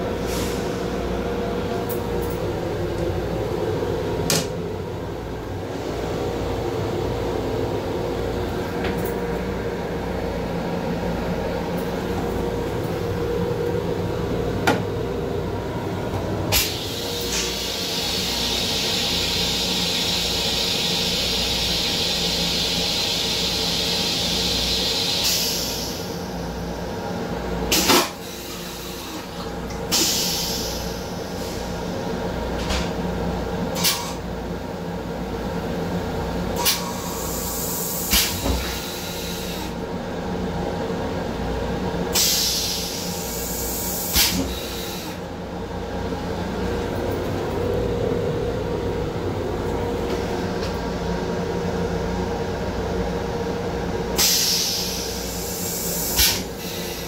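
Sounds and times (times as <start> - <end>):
train running rumble: 44.1 - 56.4.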